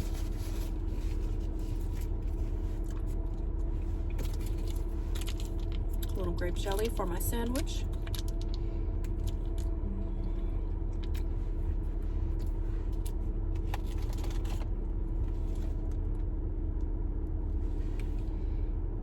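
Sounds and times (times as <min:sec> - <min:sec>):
food packaging crinkling: 0:00.0 - 0:09.8, 0:12.9 - 0:15.8
car idling rumble: 0:00.0 - 0:19.0.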